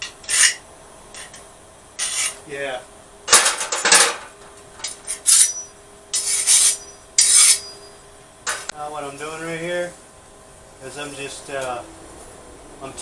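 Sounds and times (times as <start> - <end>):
file scraping steel blade: 0.0 - 0.6, 2.0 - 2.4, 4.8 - 7.9.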